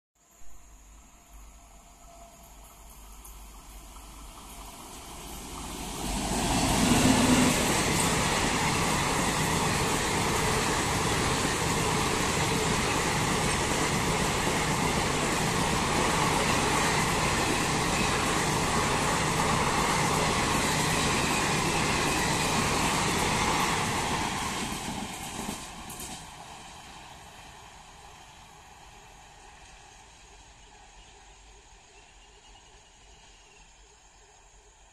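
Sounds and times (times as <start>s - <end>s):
train wheels rumbling and clattering: 2.5s - 27.6s.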